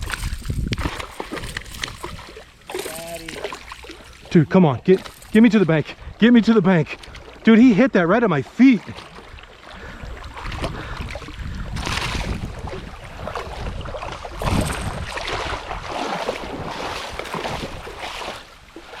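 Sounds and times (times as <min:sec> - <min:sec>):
wind rumbling on microphone: 0:00.0 - 0:03.2, 0:09.2 - 0:18.3
creek water splashing: 0:00.0 - 0:19.0.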